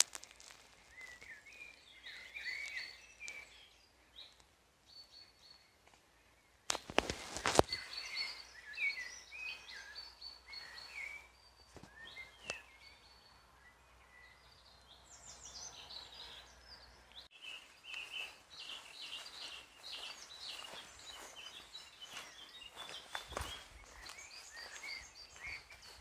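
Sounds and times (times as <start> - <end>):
birds singing and chirping: 0.1 - 26.0.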